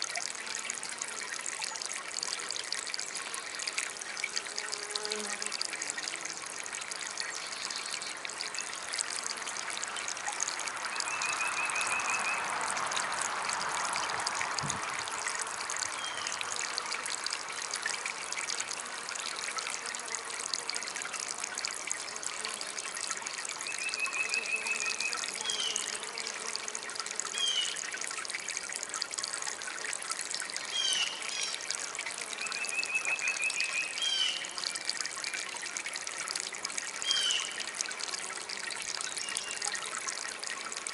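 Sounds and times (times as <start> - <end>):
garden fountain trickling: 0.0 - 40.9.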